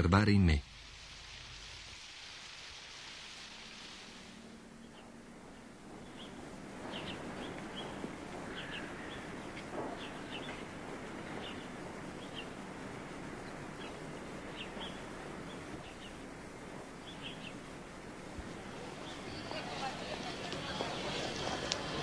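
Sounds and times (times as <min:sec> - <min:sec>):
steady background hiss: 0:00.0 - 0:22.0
small birds chirping: 0:04.8 - 0:17.9, 0:18.6 - 0:21.9.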